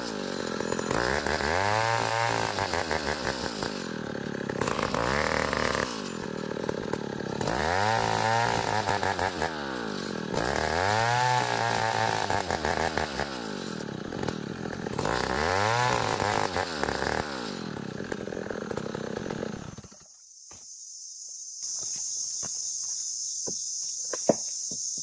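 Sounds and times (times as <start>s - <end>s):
chainsaw cutting wood: 0.0s - 20.2s
insect buzz: 19.7s - 25.0s.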